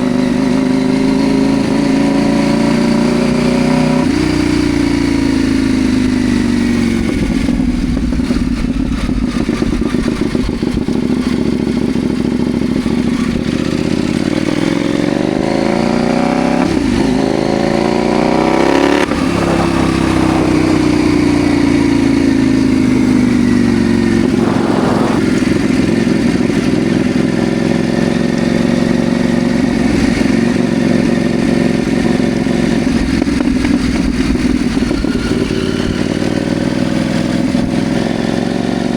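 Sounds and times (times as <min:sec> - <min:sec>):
motorcycle engine running: 0:00.0 - 0:38.9
wind rush on microphone: 0:06.6 - 0:11.4, 0:18.7 - 0:28.1, 0:29.5 - 0:38.1.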